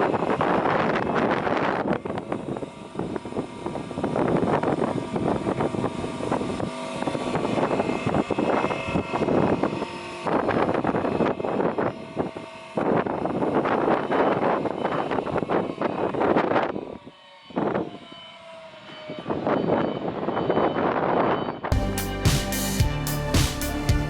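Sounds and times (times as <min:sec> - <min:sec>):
saw motor hum: 0:00.0 - 0:20.4
rushing noise of saw cutting: 0:00.0 - 0:20.6.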